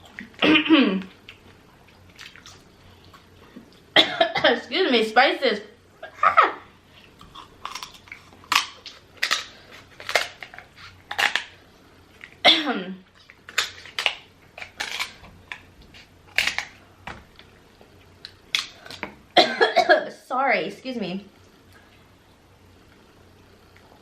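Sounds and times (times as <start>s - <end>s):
shellfish shells cracking: 7.2s - 11.6s, 13.3s - 15.7s.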